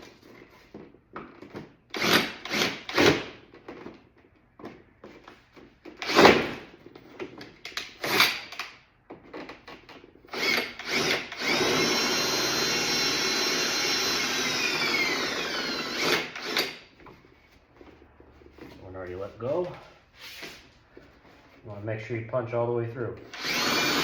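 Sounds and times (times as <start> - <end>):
power drill running: 1.9 - 3.4, 6.0 - 6.7, 10.3 - 17.0, 23.2 - 24.0.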